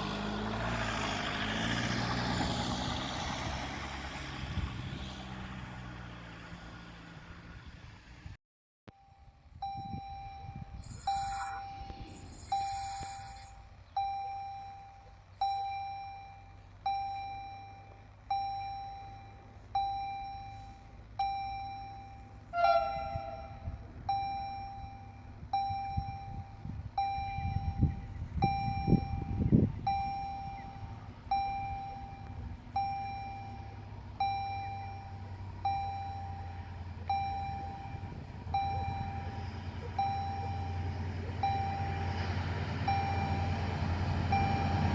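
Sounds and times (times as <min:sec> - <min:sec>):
diesel engine rumble: 0:00.0 - 0:44.9
level-crossing warning bell ringing: 0:09.0 - 0:42.2, 0:42.8 - 0:44.9.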